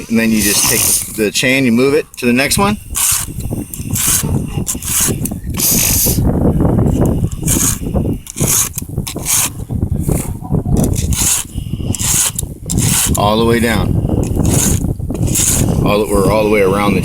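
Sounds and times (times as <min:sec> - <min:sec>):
file rasping on chainsaw chain: 0:00.0 - 0:01.2, 0:02.9 - 0:06.2, 0:07.0 - 0:09.6, 0:10.8 - 0:13.4, 0:14.2 - 0:15.8.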